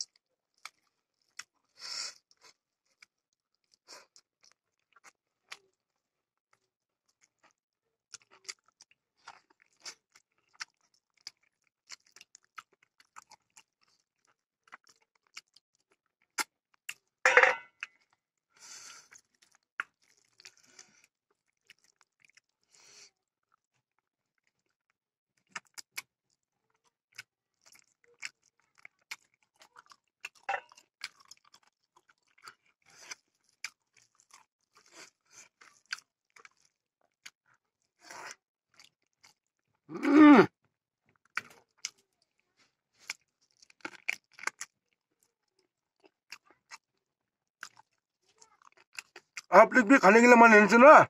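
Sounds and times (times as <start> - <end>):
person chewing food: 0.0 - 40.2, 41.0 - 49.5
grunt-like vocal sound: 39.9 - 40.5.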